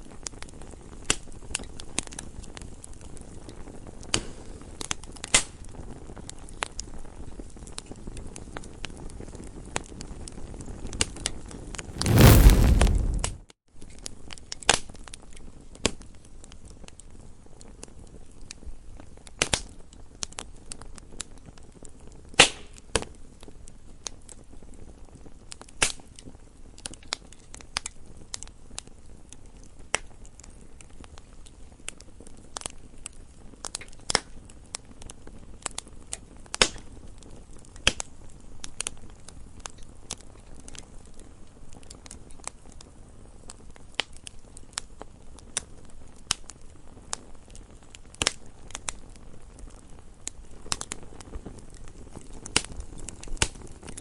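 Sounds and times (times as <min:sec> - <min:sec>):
campfire crackling: 0:11.9 - 0:13.4, 0:38.8 - 0:54.0
faint low hiss: 0:11.9 - 0:13.4.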